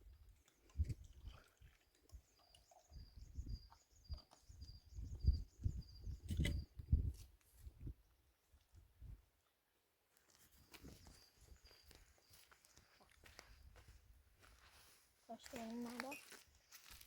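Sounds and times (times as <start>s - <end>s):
small bird chirping: 2.2s - 7.2s.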